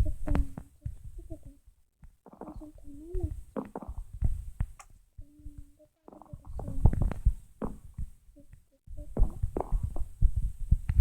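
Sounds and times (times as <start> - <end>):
wet slime squelches: 0.0 - 10.2.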